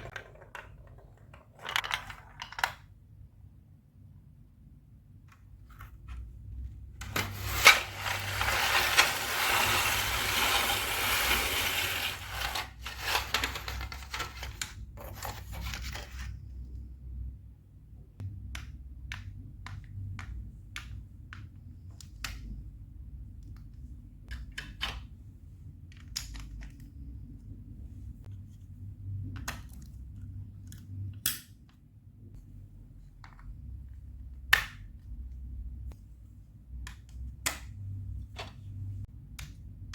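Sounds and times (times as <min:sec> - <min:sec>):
marbles rattling down plastic blocks: 0:07.0 - 0:14.6.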